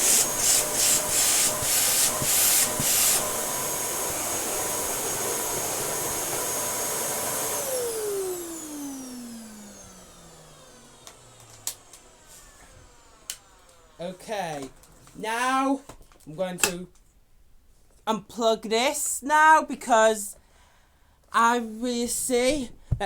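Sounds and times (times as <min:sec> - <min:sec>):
vacuum cleaner motor whine: 0:00.0 - 0:15.2.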